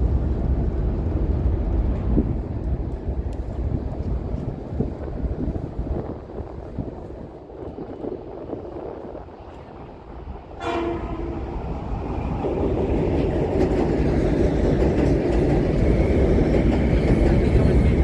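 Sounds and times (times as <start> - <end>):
train rumble: 0.0 - 18.0
train horn blast: 10.6 - 11.6.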